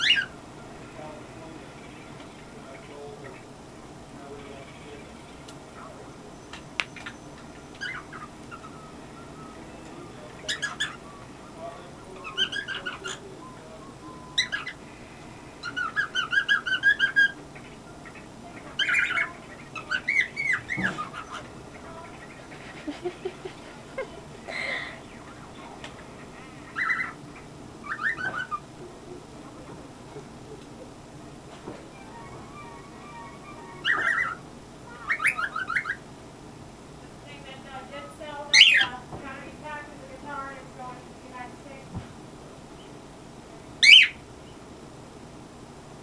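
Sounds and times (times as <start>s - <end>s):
cockatiel chirping: 0.0s - 0.4s, 7.7s - 11.4s, 12.1s - 13.4s, 14.0s - 14.8s, 15.6s - 22.6s, 26.6s - 27.2s, 27.8s - 28.7s, 32.1s - 36.0s, 38.5s - 39.0s, 43.8s - 44.2s.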